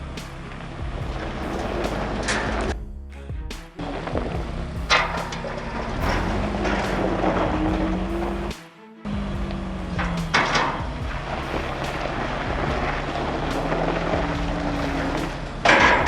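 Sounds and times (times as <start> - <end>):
noisy engine surge: 3.8 - 16.0
diesel engine running under load: 4.1 - 8.5.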